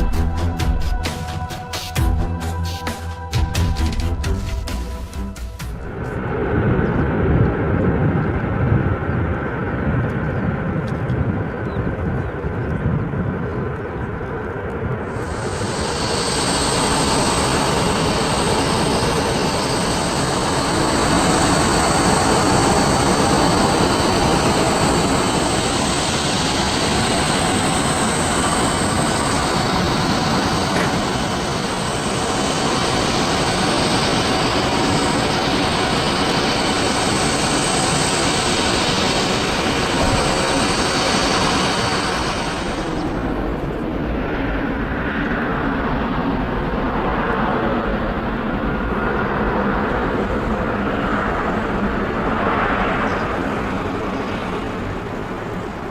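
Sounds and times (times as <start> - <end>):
aircraft engines roaring: 0.0 - 55.9
faint high whine: 15.0 - 44.5.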